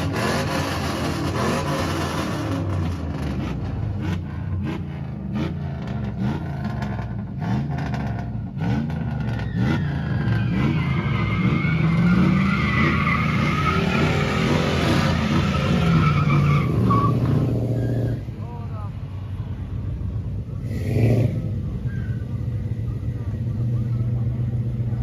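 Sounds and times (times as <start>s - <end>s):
engine revving: 0.0s - 18.3s, 20.6s - 21.6s
tyres squealing: 9.4s - 18.2s.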